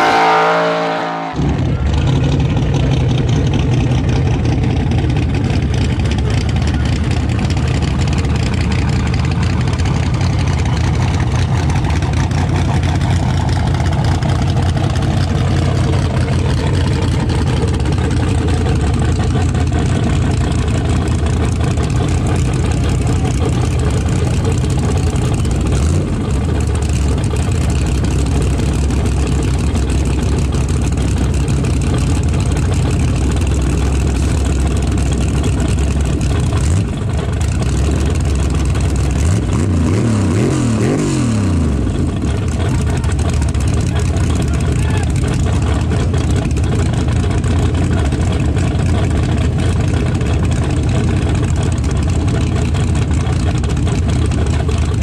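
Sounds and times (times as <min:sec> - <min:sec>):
fainter engine note falling in pitch: 0:00.0 - 0:03.2
race car engines idling: 0:00.0 - 0:55.0.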